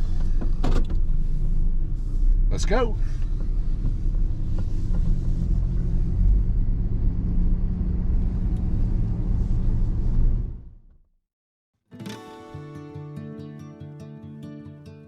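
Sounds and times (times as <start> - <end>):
truck engine driving off: 0.0 - 10.8.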